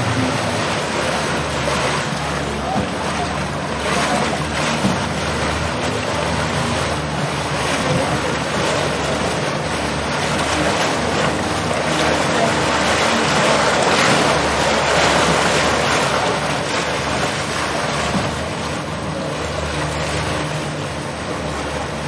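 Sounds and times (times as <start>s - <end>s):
boat motor humming: 0.0s - 22.0s
water rushing along hull: 0.0s - 22.0s.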